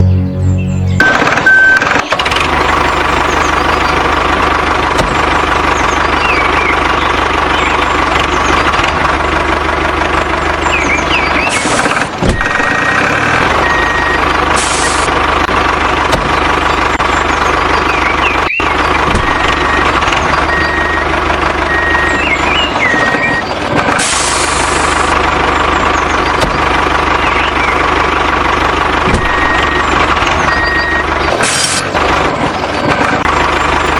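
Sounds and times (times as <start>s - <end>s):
vehicle engine running: 0.0s - 33.9s
short repeated beeps: 1.0s - 2.2s.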